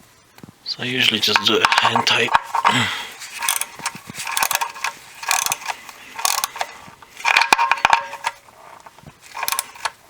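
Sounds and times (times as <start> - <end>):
ratchet wrench clicking: 3.3 - 10.0.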